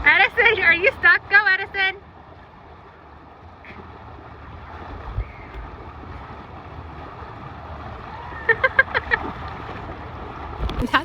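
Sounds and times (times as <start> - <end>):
running water rushing: 0.0 - 11.0
wind buffeting microphone: 3.6 - 11.0.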